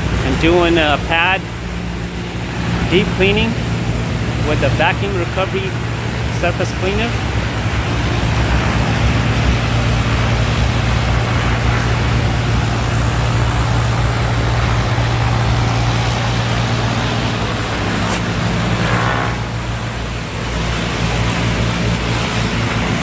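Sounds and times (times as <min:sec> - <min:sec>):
pressure washer engine hum: 0:00.0 - 0:23.0
short high whine: 0:00.0 - 0:23.0
hiss of spraying and suction: 0:08.1 - 0:21.6.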